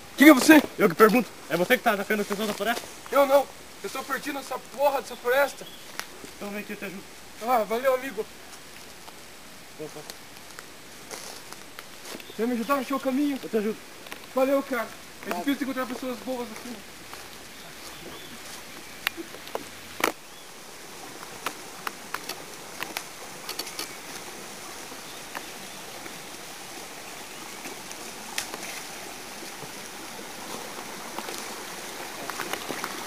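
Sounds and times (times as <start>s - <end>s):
stream rushing: 0.0s - 33.0s
sharp clicks and snaps: 21.4s - 24.0s.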